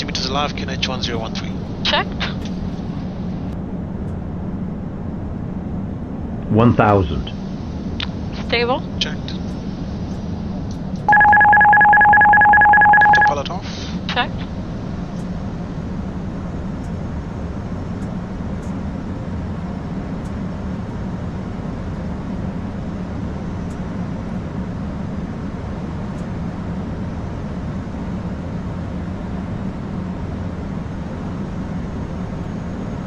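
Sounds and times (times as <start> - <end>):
low hum: 9.4 - 13.5.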